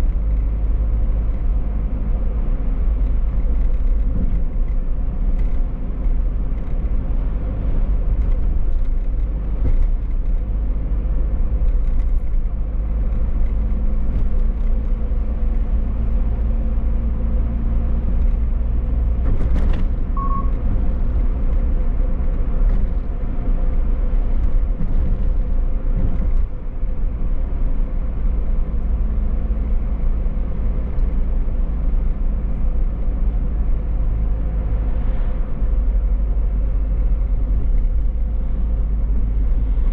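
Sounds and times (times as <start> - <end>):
car engine and road rumble: 0.0 - 39.9
short high beep: 20.2 - 20.6.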